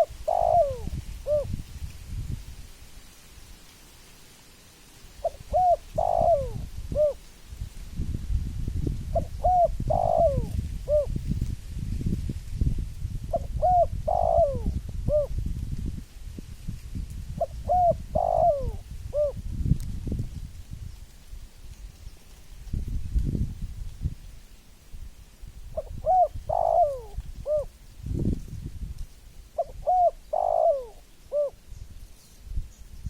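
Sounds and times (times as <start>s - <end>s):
dove cooing: 0.0s - 1.6s, 5.2s - 7.2s, 9.1s - 11.2s, 13.3s - 15.4s, 17.4s - 19.4s, 25.7s - 27.8s, 29.6s - 31.6s.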